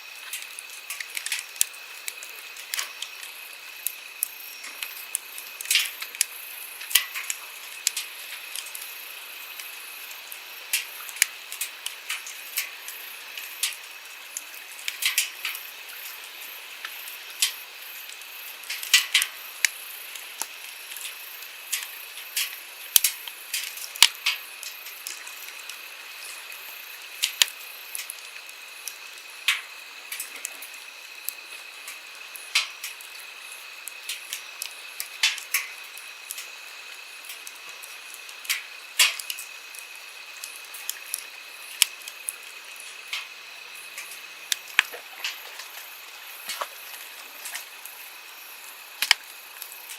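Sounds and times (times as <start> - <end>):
campfire crackling: 0.0 - 49.9
stream flowing: 39.6 - 49.9.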